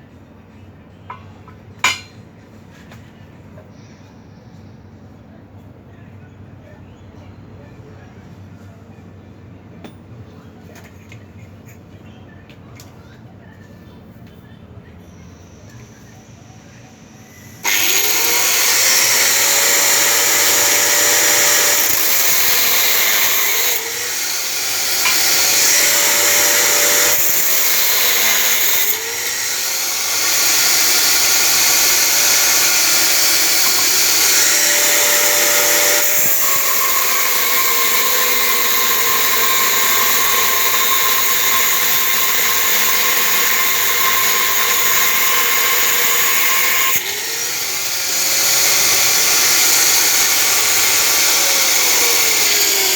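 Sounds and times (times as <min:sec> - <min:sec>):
power tool motor running: 0:15.4 - 0:52.9.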